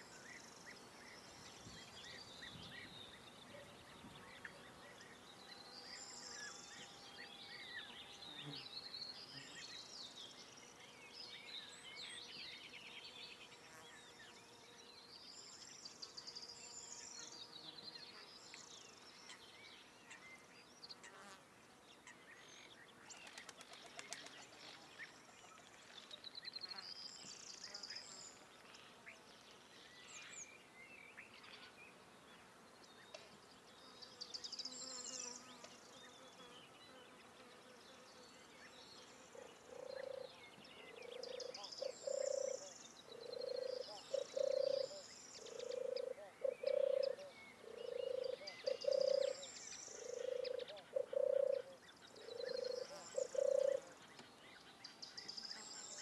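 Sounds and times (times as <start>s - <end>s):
small birds chirping and warbling: 21.9s - 56.0s.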